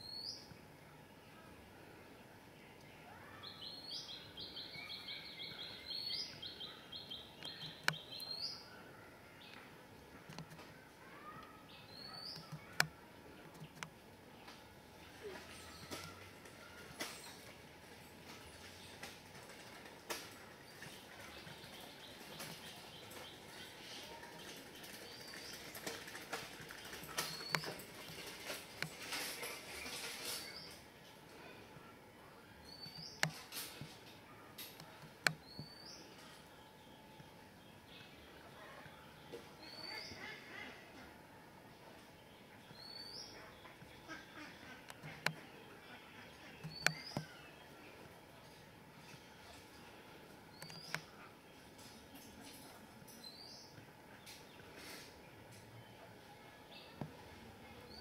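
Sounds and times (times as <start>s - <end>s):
small birds chirping: 0.0s - 40.8s, 41.7s - 58.0s
low outdoor hiss: 0.0s - 58.0s.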